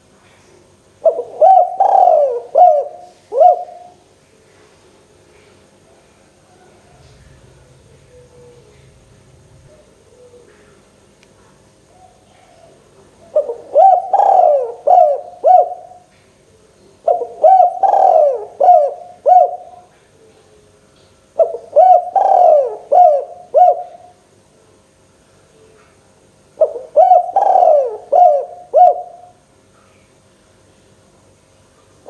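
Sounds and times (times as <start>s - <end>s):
dove cooing: 1.0s - 4.0s, 6.4s - 10.9s, 11.9s - 16.1s, 17.0s - 20.7s, 21.4s - 24.2s, 26.6s - 29.4s.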